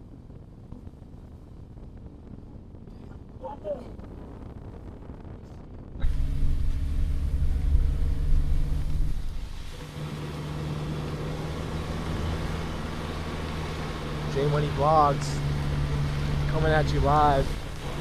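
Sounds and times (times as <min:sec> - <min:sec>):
car engine drone: 0:06.0 - 0:18.0
road rumble: 0:06.0 - 0:18.0.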